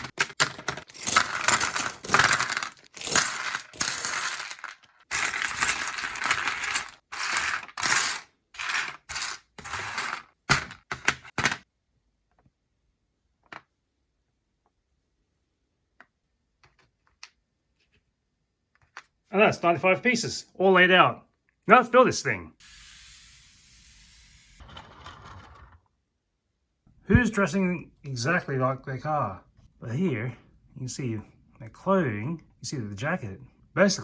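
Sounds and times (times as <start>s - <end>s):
plastic bricks rattling: 0.0s - 11.6s.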